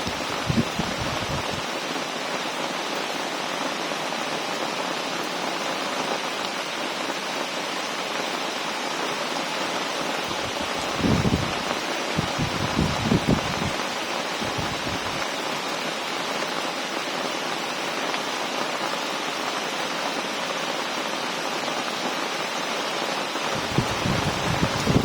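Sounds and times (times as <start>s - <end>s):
low rumbling gusts: 0.0s - 1.7s, 10.3s - 13.8s, 14.4s - 15.2s, 23.5s - 25.0s
heavy rain pouring: 0.0s - 25.0s.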